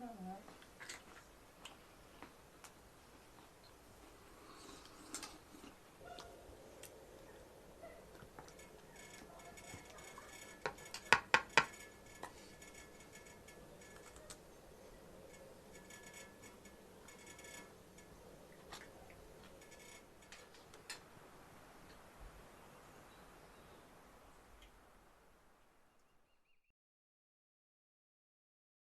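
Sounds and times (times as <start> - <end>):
faint ticks and clicks: 0.4 - 21.1.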